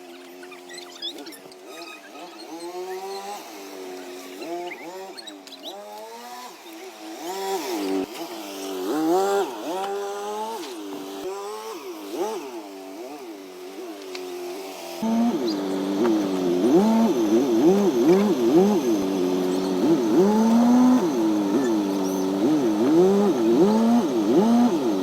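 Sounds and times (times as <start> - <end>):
car engine revving: 15.0 - 25.0
deeper engine running: 15.0 - 25.0.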